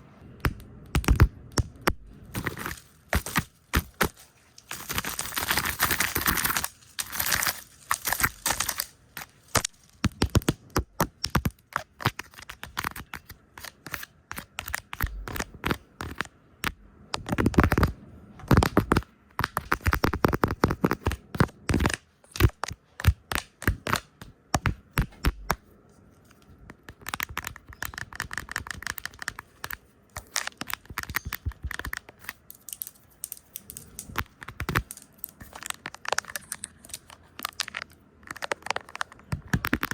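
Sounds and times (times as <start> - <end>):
rapid tapping on lens: 9.6 - 25.6, 26.7 - 32.2, 33.6 - 39.9.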